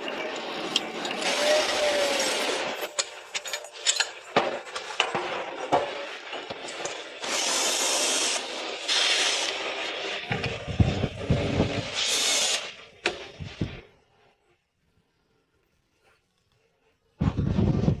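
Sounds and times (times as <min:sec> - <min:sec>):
burst of hiss: 0:05.9 - 0:14.2.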